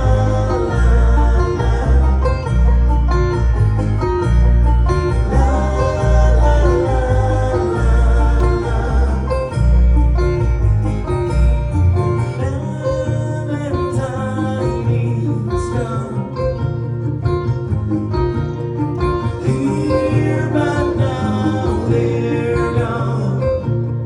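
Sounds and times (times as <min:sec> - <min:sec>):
person singing: 0:00.0 - 0:02.9, 0:05.0 - 0:10.4, 0:12.1 - 0:16.7, 0:19.2 - 0:24.0
banjo: 0:00.0 - 0:24.0
bass: 0:00.0 - 0:24.0
bluegrass band playing: 0:00.0 - 0:24.0.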